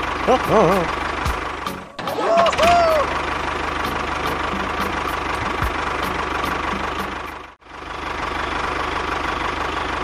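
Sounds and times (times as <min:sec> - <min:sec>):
small engine pulsing: 0:00.0 - 0:10.0.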